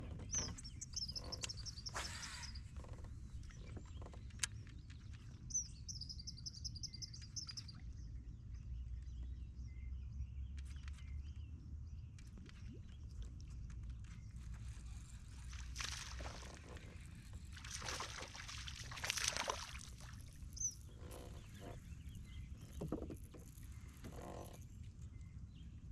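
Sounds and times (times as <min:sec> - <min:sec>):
songbird trilling: 0:00.3 - 0:02.6.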